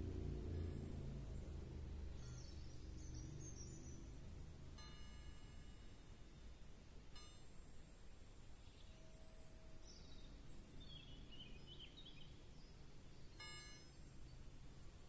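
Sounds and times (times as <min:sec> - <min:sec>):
low background rumble: 0:00.0 - 0:06.7
faint bird chirps: 0:02.2 - 0:04.2.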